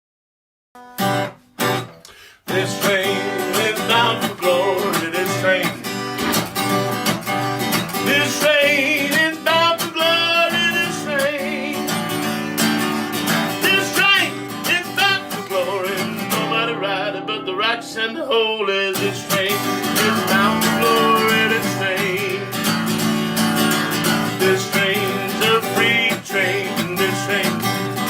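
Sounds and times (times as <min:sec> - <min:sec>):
strummed acoustic guitar: 0:00.8 - 0:28.0.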